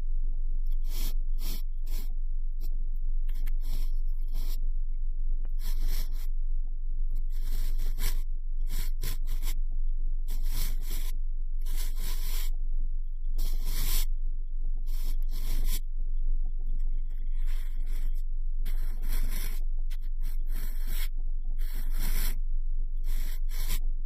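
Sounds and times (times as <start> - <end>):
steady low hum: 0.0 - 24.0
cotton swab rubbing microphone: 3.3 - 4.6, 5.6 - 6.3, 7.2 - 9.6, 10.3 - 12.6, 13.4 - 14.1, 14.9 - 15.8, 16.8 - 22.4, 23.0 - 23.8.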